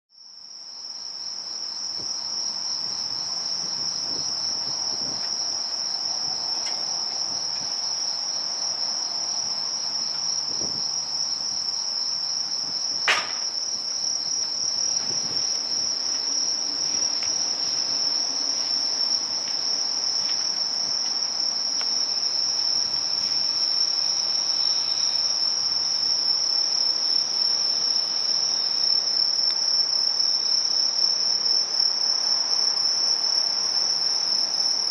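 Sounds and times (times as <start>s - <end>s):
insects chirping: 0.2s - 34.9s
sharp click: 13.1s - 13.5s.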